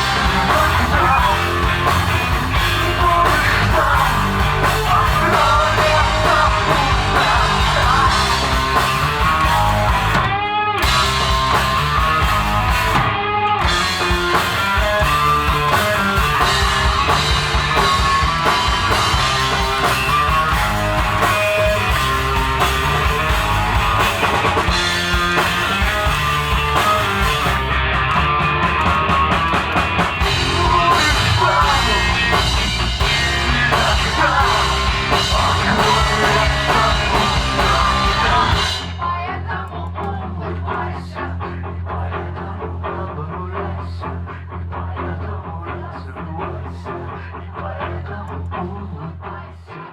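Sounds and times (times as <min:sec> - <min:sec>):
person singing: 0:00.0 - 0:02.0, 0:02.6 - 0:08.6, 0:30.2 - 0:41.3
rock band playing: 0:00.0 - 0:39.4.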